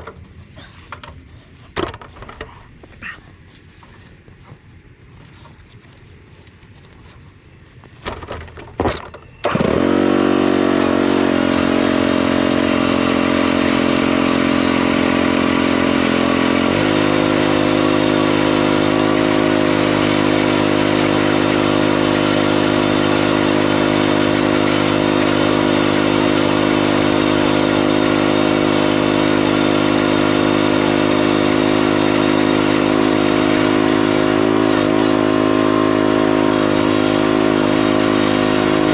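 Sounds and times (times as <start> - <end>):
vehicle engine cranking: 8.0 - 38.9
vehicle engine running: 9.5 - 38.9.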